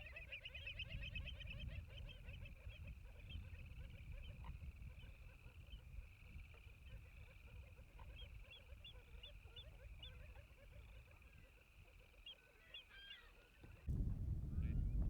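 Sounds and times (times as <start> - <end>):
wind rumbling on microphone: 0.6 - 11.4, 13.6 - 15.0.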